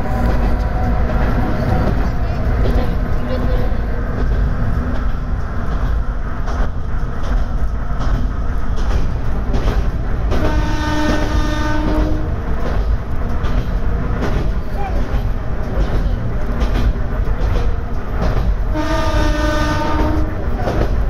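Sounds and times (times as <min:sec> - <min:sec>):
diesel railcar running on track: 0:00.0 - 0:21.0
railcar horn: 0:10.3 - 0:12.4, 0:18.7 - 0:20.6.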